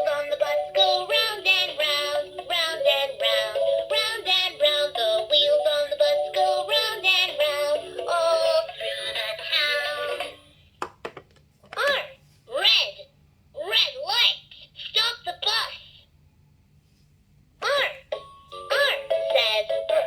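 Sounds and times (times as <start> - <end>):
simple backing tune: 0.0 - 9.0, 18.1 - 20.0
toy voice singing: 0.0 - 10.4, 17.6 - 20.0.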